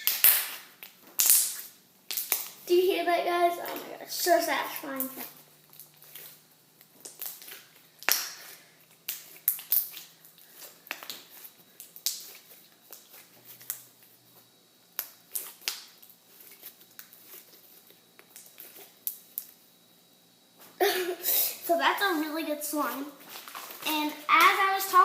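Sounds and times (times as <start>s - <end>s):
slime squeezed with wet pops: 0.0s - 2.6s, 5.0s - 13.8s, 14.9s - 17.5s.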